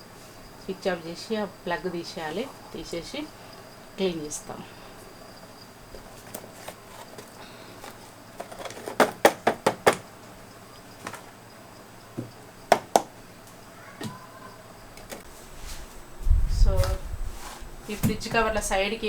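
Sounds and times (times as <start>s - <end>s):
household objects knocking and clicking: 5.9s - 10.1s, 12.2s - 13.2s.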